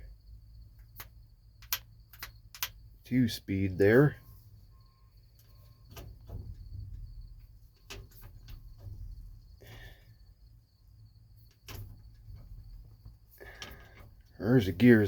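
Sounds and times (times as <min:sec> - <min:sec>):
truck engine low rumble: 0:00.0 - 0:15.0.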